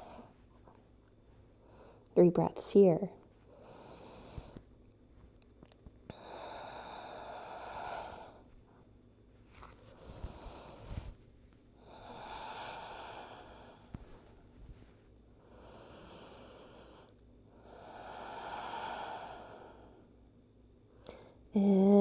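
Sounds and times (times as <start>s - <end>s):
slow deep breathing: 3.5s - 4.7s, 6.1s - 8.9s, 9.8s - 11.2s, 11.8s - 20.2s, 21.0s - 21.5s.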